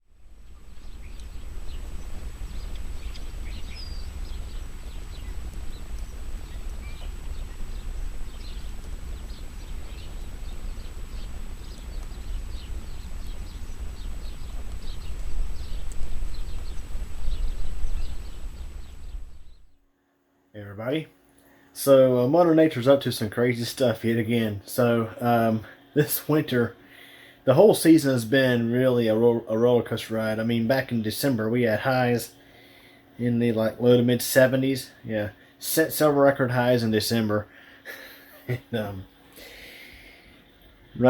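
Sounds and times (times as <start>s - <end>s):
small birds chirping: 0.1s - 19.8s, 21.3s - 41.0s
gusty wind buffeting microphone: 0.2s - 19.7s.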